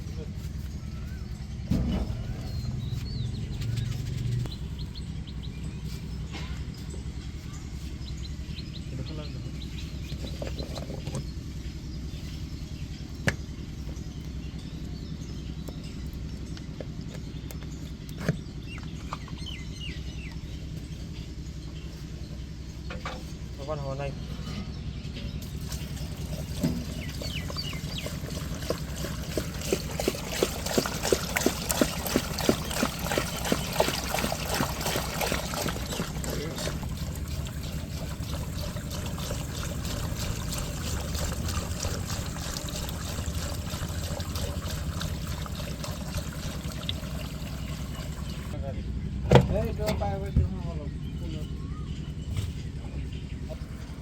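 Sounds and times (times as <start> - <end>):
engine running with low rumble: 0.0 - 54.0
steady low hum: 11.2 - 54.0
water trickling and splashing: 25.4 - 48.6.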